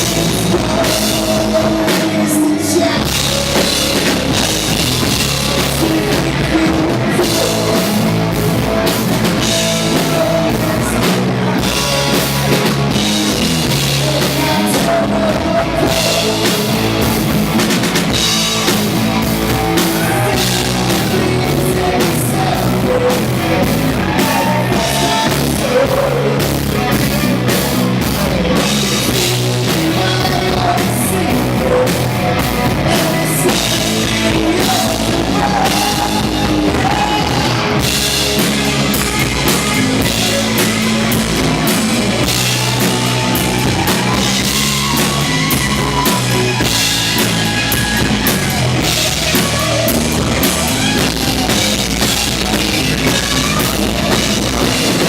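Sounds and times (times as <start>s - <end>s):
heavy metal band playing: 0.0s - 55.0s.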